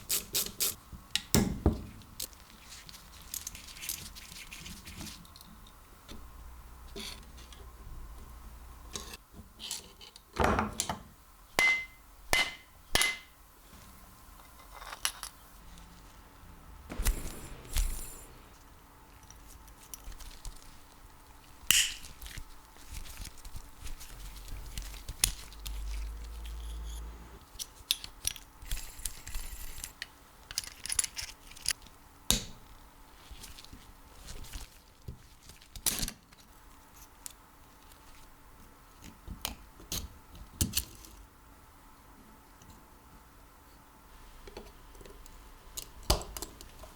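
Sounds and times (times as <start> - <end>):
tools and parts clicking and rattling: 14.4 - 15.5, 21.7 - 22.2, 25.1 - 31.9
low rumble: 16.6 - 19.2.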